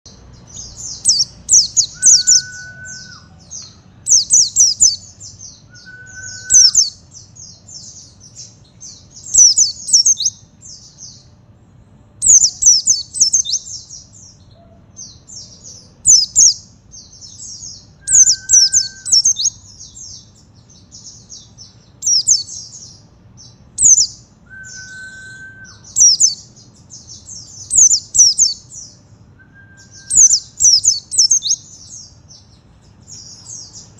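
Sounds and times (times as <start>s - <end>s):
bird high twittering song: 0.1s - 33.9s
low steady whistle: 1.9s - 3.3s, 5.7s - 6.8s, 24.4s - 26.0s, 29.4s - 30.9s.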